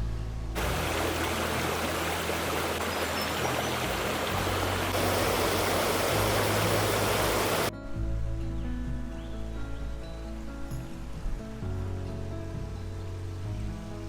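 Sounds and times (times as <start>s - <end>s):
faint background music: 0.0s - 14.0s
creek babbling: 0.6s - 7.7s.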